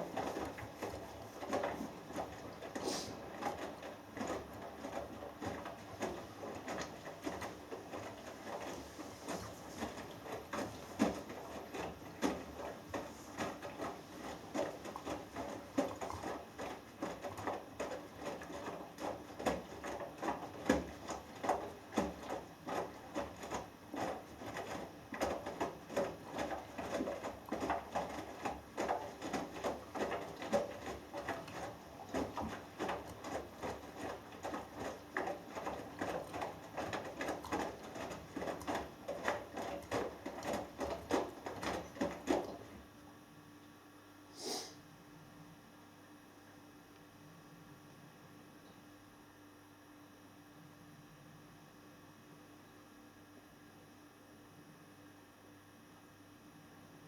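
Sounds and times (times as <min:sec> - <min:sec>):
washing machine tumbling laundry: 0:00.0 - 0:43.6.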